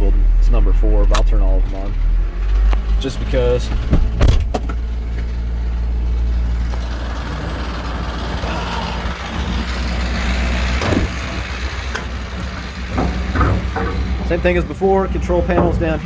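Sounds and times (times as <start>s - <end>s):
diesel engine idling: 0.0s - 16.0s
sharp clunk: 3.7s - 4.8s, 11.9s - 14.2s.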